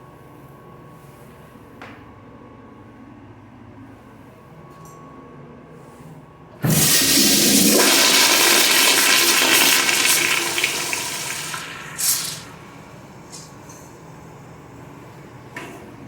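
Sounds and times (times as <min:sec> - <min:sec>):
toilet flushing: 0:06.6 - 0:16.0.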